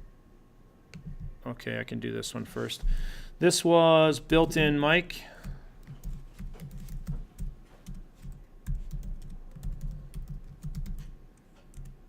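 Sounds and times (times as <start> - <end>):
typing on computer keyboard: 5.4 - 12.0.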